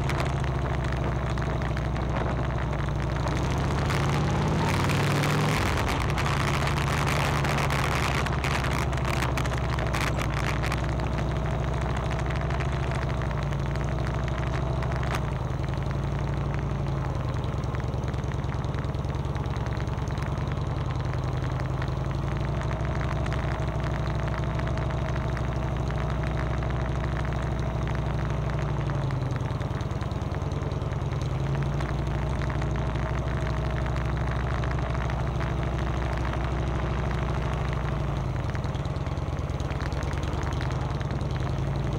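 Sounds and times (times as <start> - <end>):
crackling or rattling: 0.0 - 15.9
motorcycle engine running: 0.0 - 41.9.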